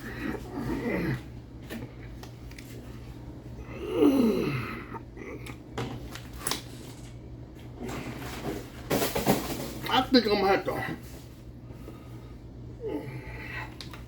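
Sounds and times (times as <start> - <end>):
man groaning: 0.0 - 1.3, 3.6 - 5.6, 12.8 - 13.7.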